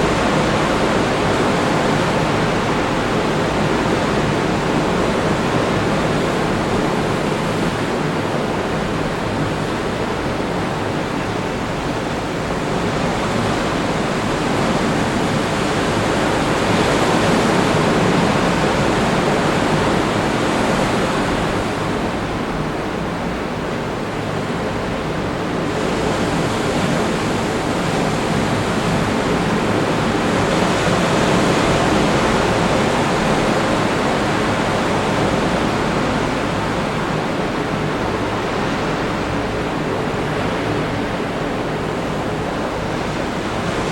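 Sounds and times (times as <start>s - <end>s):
ocean surf breaking on beach: 0.0s - 43.9s.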